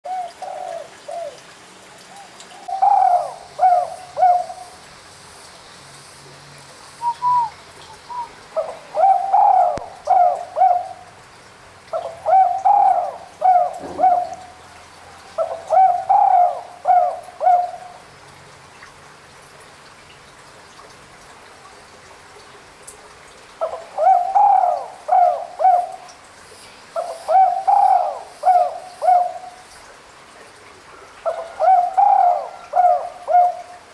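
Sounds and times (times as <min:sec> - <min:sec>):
dove cooing: 0:00.1 - 0:01.5, 0:02.6 - 0:04.9, 0:07.0 - 0:11.1, 0:11.9 - 0:18.0, 0:23.6 - 0:26.1, 0:27.0 - 0:29.6, 0:31.2 - 0:33.8.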